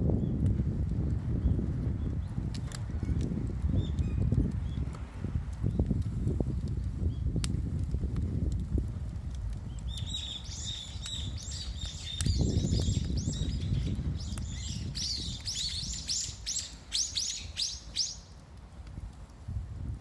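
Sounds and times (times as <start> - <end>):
steady low rumble: 0.0 - 20.0
small bird chirping: 9.9 - 18.2.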